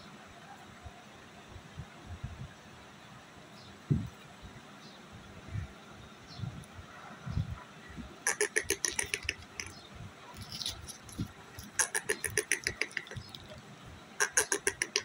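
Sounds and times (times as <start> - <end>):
parrot sharp repeated notes: 8.3 - 9.8, 11.6 - 13.4, 14.2 - 15.0.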